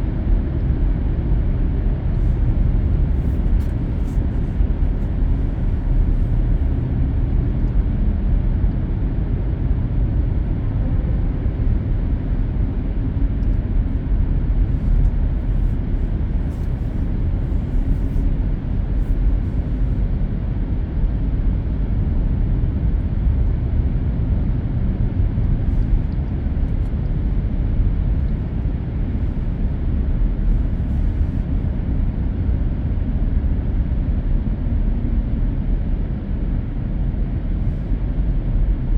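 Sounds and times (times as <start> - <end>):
car cabin road rumble: 0.0 - 11.2, 12.7 - 33.2, 36.3 - 38.9.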